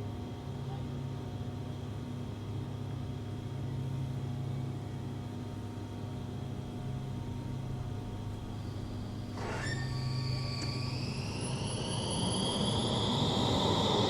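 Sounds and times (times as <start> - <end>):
tram electrical hum: 0.0 - 14.0.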